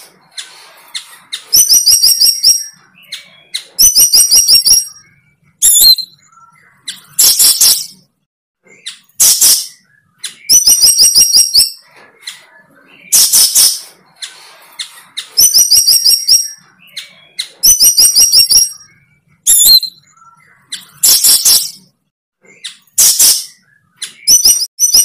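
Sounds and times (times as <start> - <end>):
bird rapid high chirps: 0.0 - 25.0
bird harsh rasping calls: 8.7 - 21.8.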